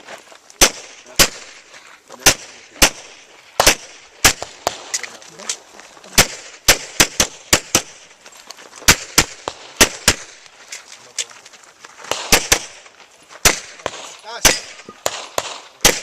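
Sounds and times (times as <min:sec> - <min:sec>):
rapid pistol shots: 0:00.6 - 0:05.0, 0:06.1 - 0:08.1, 0:08.8 - 0:10.5, 0:12.0 - 0:16.0.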